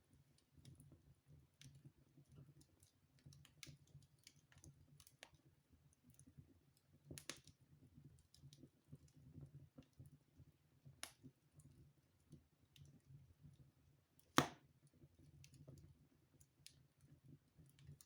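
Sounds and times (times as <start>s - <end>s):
wood fire crackling: 0.1s - 9.5s.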